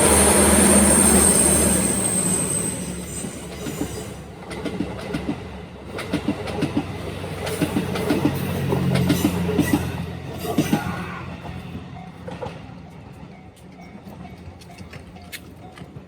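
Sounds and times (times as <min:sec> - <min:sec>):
train wheels clicking over rail joints: 0:03.2 - 0:16.0.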